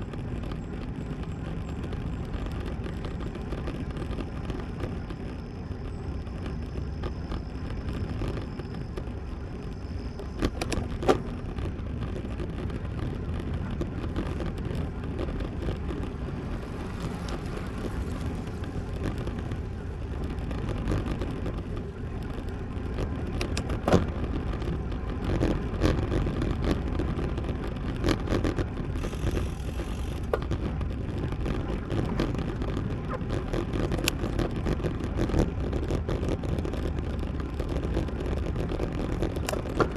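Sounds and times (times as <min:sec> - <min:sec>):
bike road noise: 0:00.0 - 0:39.9
wind rumble on microphone: 0:00.0 - 0:39.9.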